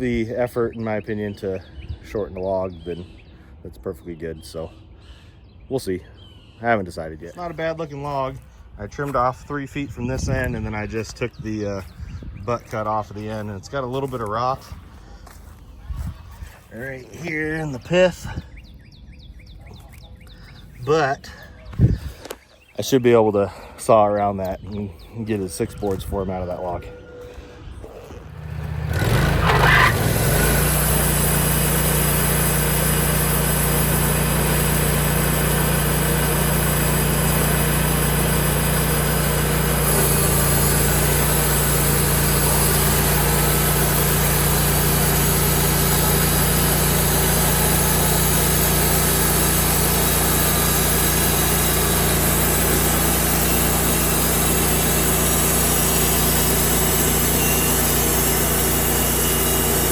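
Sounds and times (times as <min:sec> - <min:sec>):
sawmill engine running: 0:25.8 - 0:59.9.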